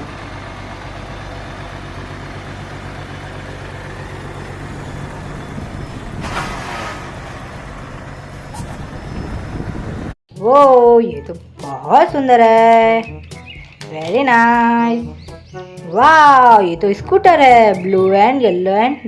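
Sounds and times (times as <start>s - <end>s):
truck engine idling: 0.0s - 10.2s.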